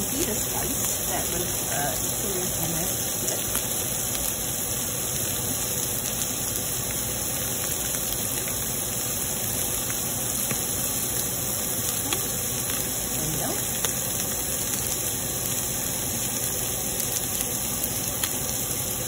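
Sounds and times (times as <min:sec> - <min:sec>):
meat and vegetables sizzling in a pan: 0:00.0 - 0:19.0.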